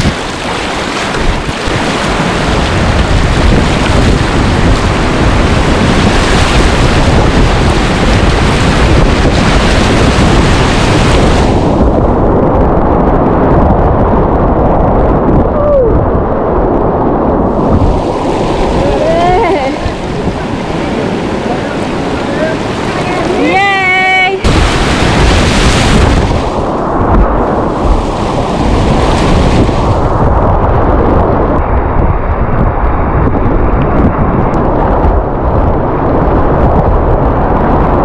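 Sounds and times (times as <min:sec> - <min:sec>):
whitewater rushing: 0:00.0 - 0:12.0, 0:17.5 - 0:30.3
wind buffeting microphone: 0:00.0 - 0:38.0.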